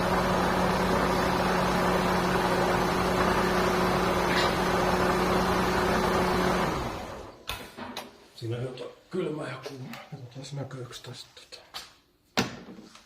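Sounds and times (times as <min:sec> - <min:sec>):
machine humming and hissing: 0:00.0 - 0:07.3.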